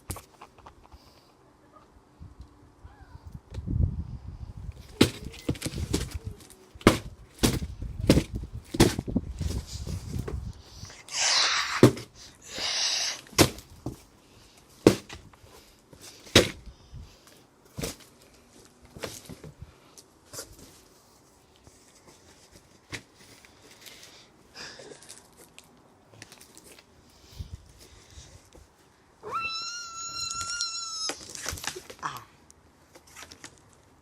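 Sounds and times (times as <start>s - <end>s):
pole knocking cardboard box: 4.9s - 6.2s, 6.8s - 9.1s.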